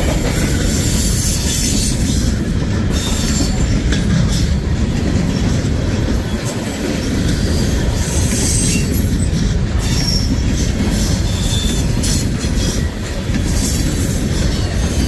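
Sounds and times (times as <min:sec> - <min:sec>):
train wheels rumbling on rail: 0:00.0 - 0:15.0
wheel flange squeals: 0:07.4 - 0:15.0.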